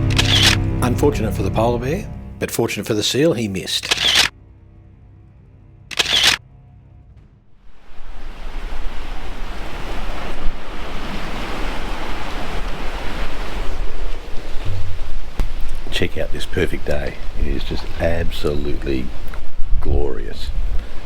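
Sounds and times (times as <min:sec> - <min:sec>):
soft background music: 0:00.0 - 0:08.0
camera shutter burst: 0:00.1 - 0:00.6, 0:03.8 - 0:04.3, 0:05.9 - 0:06.4
wind and sea rushing: 0:07.5 - 0:21.0.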